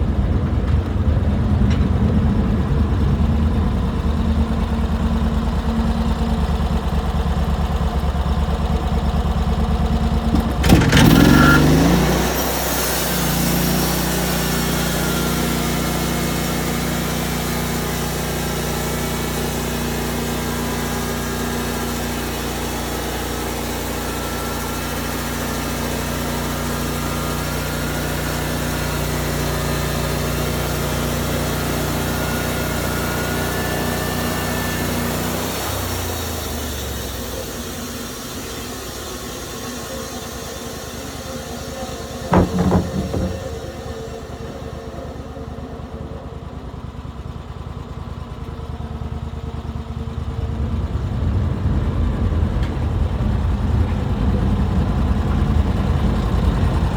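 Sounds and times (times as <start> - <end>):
sawmill engine running: 0.0 - 56.9
sharp metallic clank: 42.3 - 44.1.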